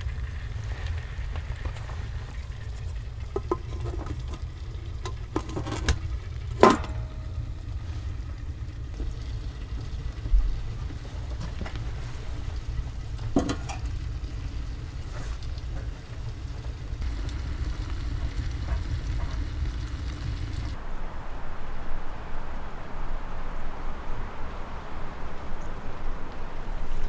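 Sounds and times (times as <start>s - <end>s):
knocks and clatters of handling: 1.3s - 20.8s
strong wind rumble: 6.0s - 24.9s.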